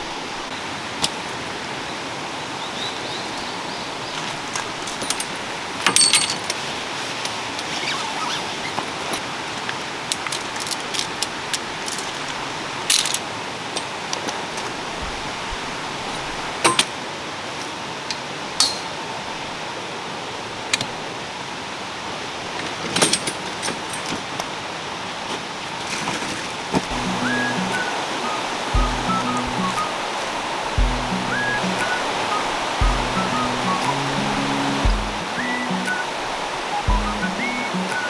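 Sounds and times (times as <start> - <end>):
camping gear clinking and knocking: 4.2 - 6.8, 8.8 - 15.2, 22.9 - 24.5
water rushing: 26.8 - 38.0.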